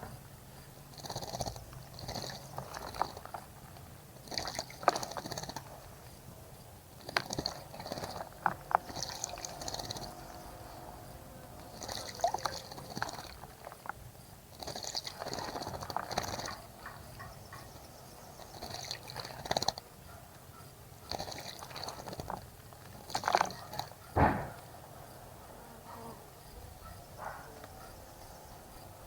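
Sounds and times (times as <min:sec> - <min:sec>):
water splashing in bird bath: 0:07.4 - 0:10.8, 0:11.6 - 0:14.0, 0:14.6 - 0:17.0, 0:18.4 - 0:19.8, 0:21.1 - 0:23.9.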